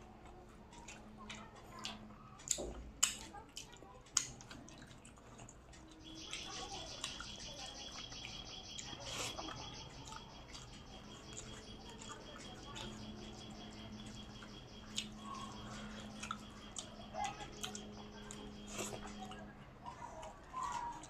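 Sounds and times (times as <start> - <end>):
wet chewing clicks and smacks: 0.0 - 21.0
high pulsing chirping: 6.0 - 19.3.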